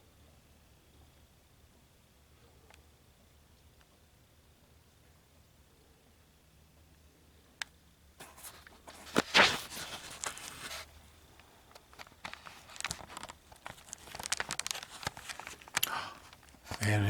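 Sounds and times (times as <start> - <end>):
close rustling and scraping: 8.2 - 11.0, 11.8 - 16.8.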